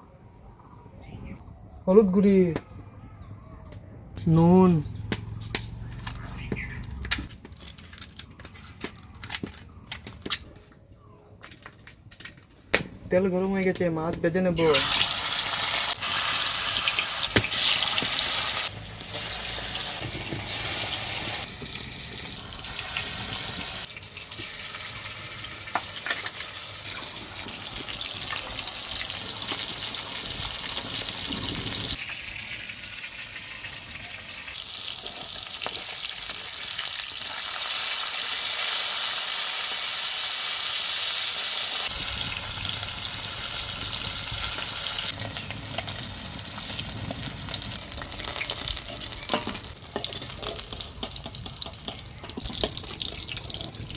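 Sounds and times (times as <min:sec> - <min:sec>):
fish sizzling in hot oil: 0:14.6 - 0:53.9.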